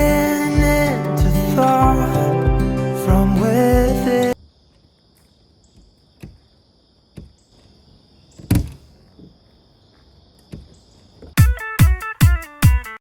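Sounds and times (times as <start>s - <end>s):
insects chirring: 3.4s - 11.4s
dull knocks: 5.8s - 6.4s, 8.4s - 9.4s.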